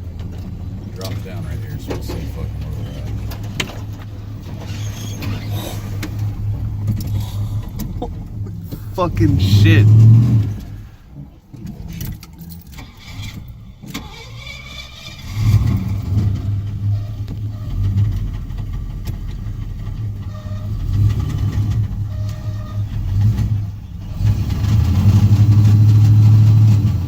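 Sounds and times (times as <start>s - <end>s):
truck engine rumbling: 0.0s - 11.5s.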